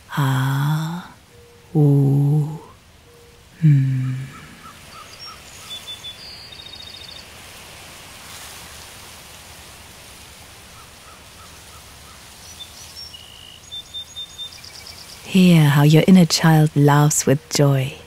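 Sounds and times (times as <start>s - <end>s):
birds chirping: 0.0s - 7.3s, 12.4s - 18.0s
soft steady hiss: 0.0s - 18.0s
bird trill: 12.6s - 15.2s.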